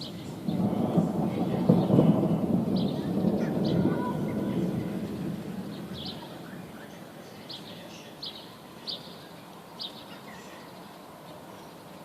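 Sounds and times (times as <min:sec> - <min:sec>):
thunder rolling: 0:00.0 - 0:07.1.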